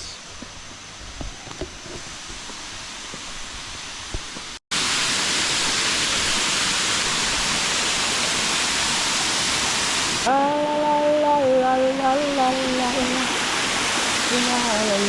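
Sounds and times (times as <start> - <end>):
waterfall rushing: 3.6 - 15.0.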